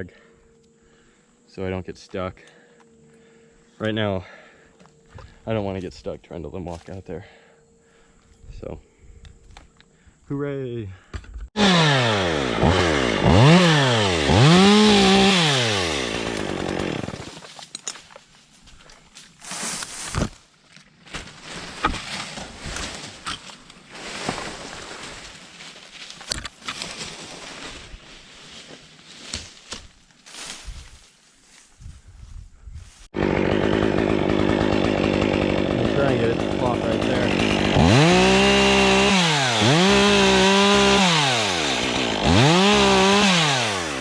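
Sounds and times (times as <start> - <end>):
chainsaw revving: 11.6 - 17.5, 33.2 - 44.0.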